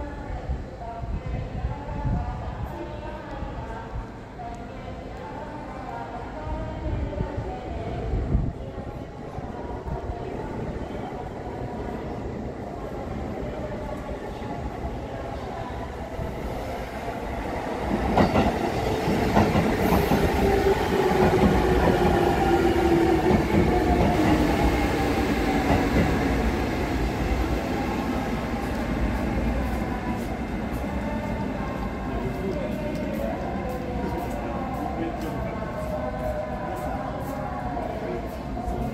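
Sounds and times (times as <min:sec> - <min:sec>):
train wheels on rails: 0:16.3 - 0:38.9.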